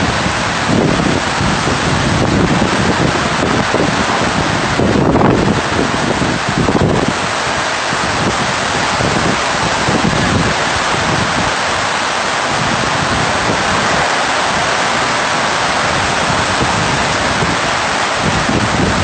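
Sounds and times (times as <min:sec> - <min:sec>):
heavy rain pouring: 0:00.0 - 0:19.0
wind gusts on the microphone: 0:00.0 - 0:19.0.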